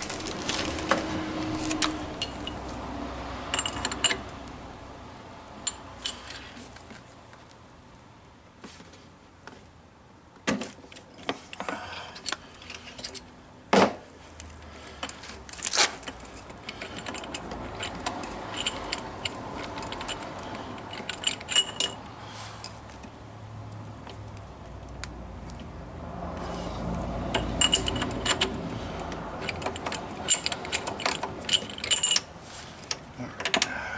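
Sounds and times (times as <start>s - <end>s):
metal wrench knocks and clicks: 16.0s - 22.0s, 27.3s - 28.6s, 29.4s - 33.7s.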